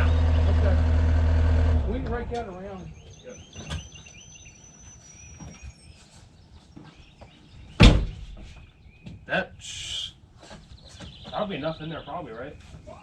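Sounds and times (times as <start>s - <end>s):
loud thump: 7.8s - 8.3s.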